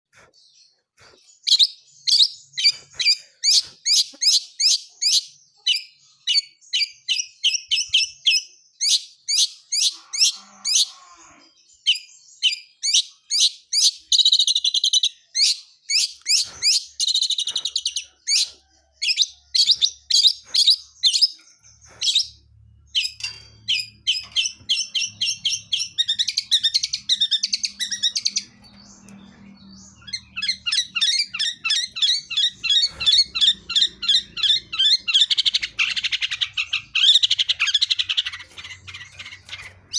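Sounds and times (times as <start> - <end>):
bird trills: 1.0 - 39.9
bird warbling: 30.0 - 39.9.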